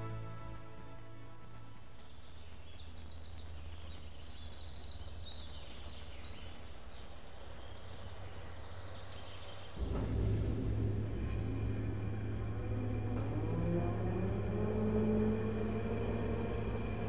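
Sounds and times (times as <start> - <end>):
steady low hum: 0.0 - 17.0
small birds trilling: 1.8 - 10.2.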